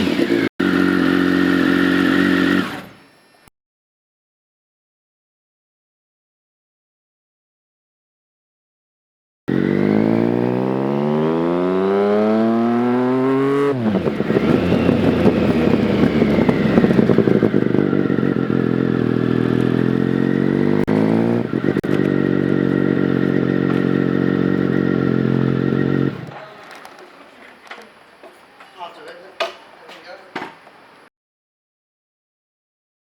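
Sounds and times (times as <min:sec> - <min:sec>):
motorcycle engine accelerating: 0:00.0 - 0:03.0, 0:09.5 - 0:26.4.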